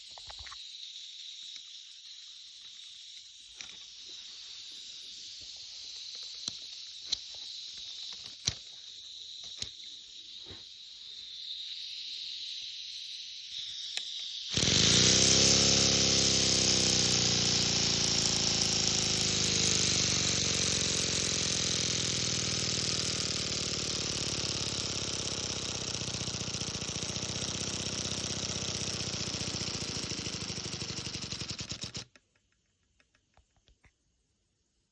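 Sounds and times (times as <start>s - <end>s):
pneumatic engine buzzing: 14.5s - 32.2s.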